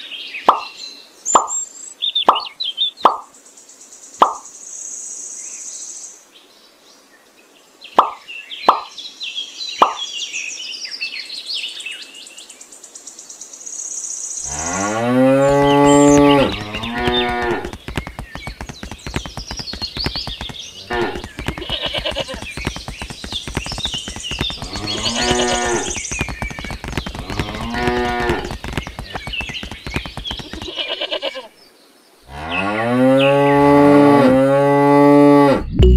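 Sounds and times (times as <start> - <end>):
birds chirping: 0.0 - 4.9, 7.9 - 11.0, 14.4 - 34.1
cows mooing: 14.5 - 17.8, 20.8 - 22.4, 24.5 - 26.0, 27.1 - 29.2.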